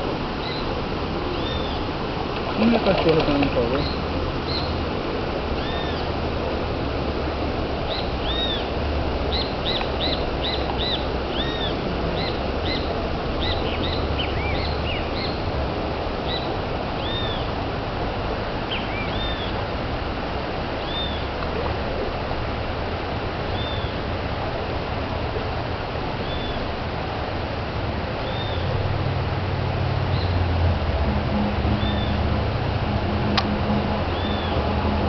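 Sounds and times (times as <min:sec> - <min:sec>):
birds chirping: 0:00.0 - 0:04.9, 0:05.5 - 0:06.2, 0:07.8 - 0:15.6, 0:16.2 - 0:17.6, 0:18.6 - 0:19.7, 0:20.8 - 0:21.5, 0:23.4 - 0:24.1, 0:26.2 - 0:26.8, 0:28.2 - 0:28.8, 0:30.0 - 0:30.5, 0:31.8 - 0:32.3, 0:33.9 - 0:34.8
waterfall rushing: 0:00.0 - 0:35.0.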